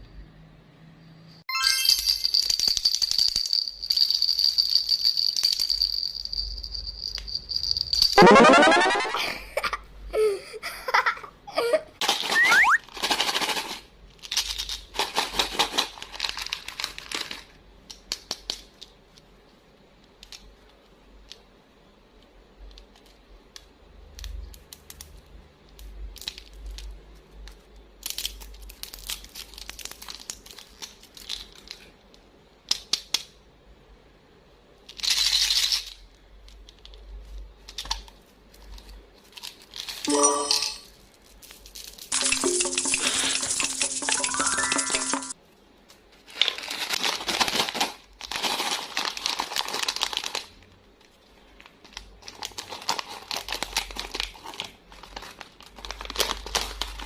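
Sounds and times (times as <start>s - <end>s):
candy wrapper crinkling: 12.0s - 18.9s, 27.5s - 31.9s, 37.6s - 40.2s, 41.0s - 45.4s, 46.2s - 57.0s.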